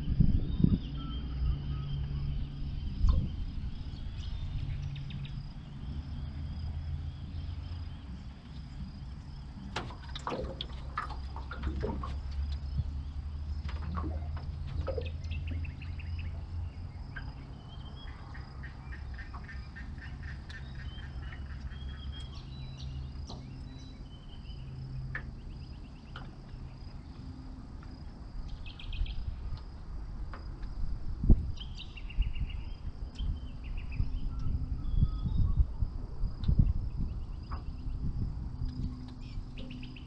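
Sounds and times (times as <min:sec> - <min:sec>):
low rumble: 0:00.0 - 0:18.6
birds calling: 0:00.6 - 0:29.8, 0:36.6 - 0:40.0.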